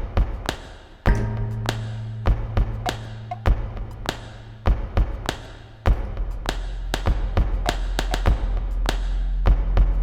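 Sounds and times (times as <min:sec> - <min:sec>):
low steady drone: 0:01.1 - 0:08.1
sharp percussive hits: 0:01.1 - 0:08.5.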